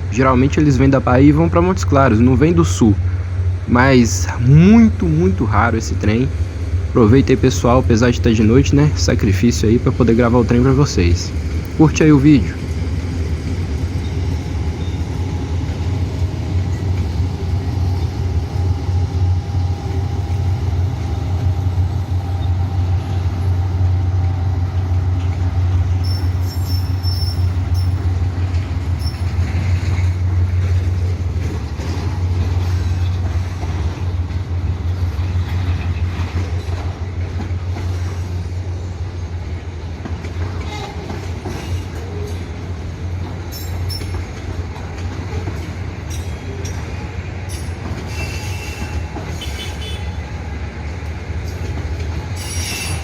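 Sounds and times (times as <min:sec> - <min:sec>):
freight train rumbling past: 0:00.0 - 0:53.0
high wheel squeal: 0:26.0 - 0:28.1, 0:29.0 - 0:29.4, 0:47.5 - 0:50.1, 0:52.4 - 0:53.0.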